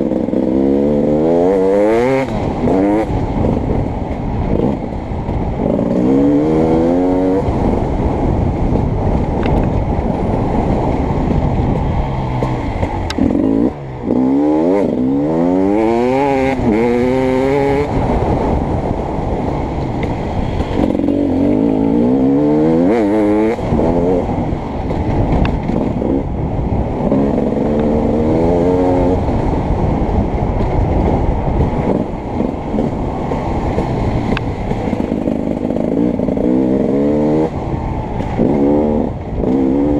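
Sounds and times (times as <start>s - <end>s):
two-stroke dirt bike engine revving: 0.0s - 3.8s, 4.5s - 9.0s, 10.1s - 18.6s, 20.1s - 30.0s, 31.5s - 39.9s.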